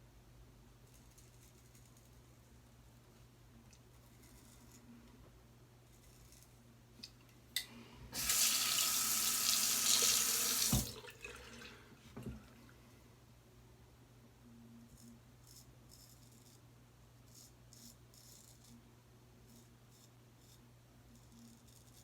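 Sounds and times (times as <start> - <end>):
sink tap running: 8.2 - 11.1.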